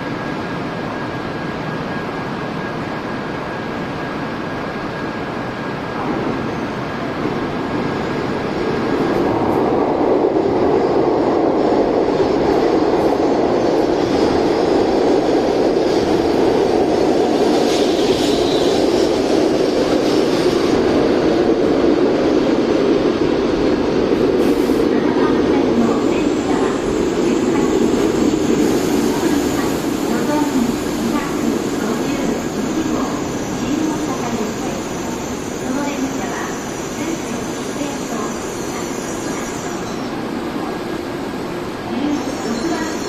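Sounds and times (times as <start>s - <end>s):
train rushing noise: 0.0s - 43.0s.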